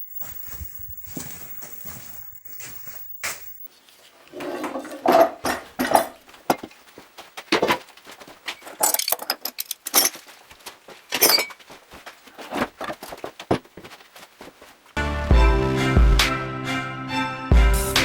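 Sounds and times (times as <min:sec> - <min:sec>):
small hard objects clinking: 0:08.6 - 0:10.3, 0:11.1 - 0:11.6.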